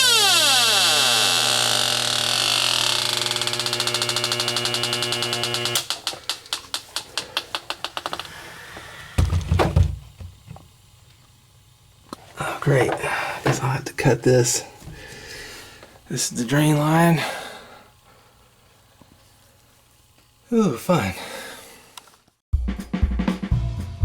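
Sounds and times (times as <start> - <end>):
leak detector rapid beeping: 3.4 - 5.9.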